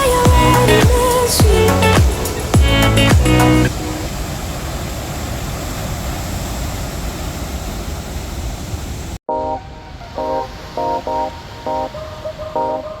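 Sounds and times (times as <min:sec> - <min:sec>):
steady rushing noise: 0:00.0 - 0:13.0
plucked guitar music: 0:00.3 - 0:04.0.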